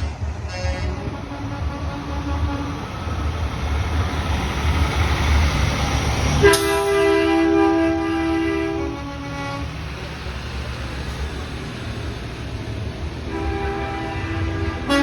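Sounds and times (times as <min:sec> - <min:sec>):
truck engine rumbling: 0:00.0 - 0:15.0
truck air horn two-note chord: 0:06.4 - 0:09.7.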